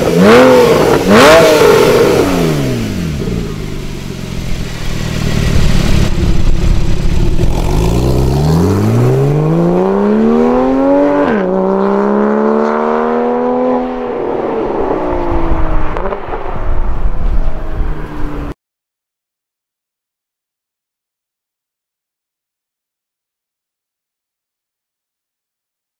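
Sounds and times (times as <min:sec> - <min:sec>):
car engine revving: 0:00.0 - 0:18.6.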